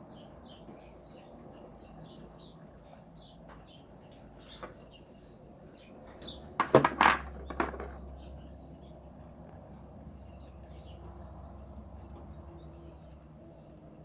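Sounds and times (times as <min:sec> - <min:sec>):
small birds chirping: 0:00.0 - 0:06.6, 0:07.4 - 0:14.0
loud knocks: 0:06.6 - 0:08.0.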